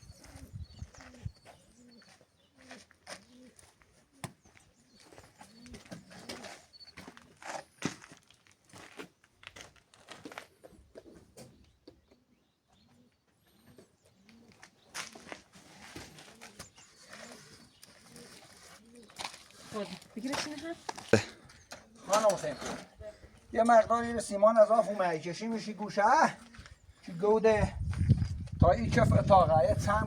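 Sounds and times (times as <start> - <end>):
dove cooing: 0.0 - 7.3, 12.1 - 14.7, 15.7 - 19.7, 26.4 - 26.8.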